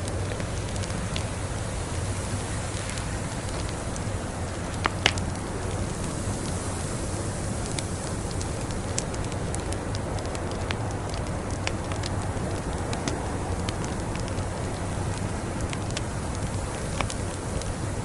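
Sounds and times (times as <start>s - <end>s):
log fire crackling: 0.0s - 18.0s.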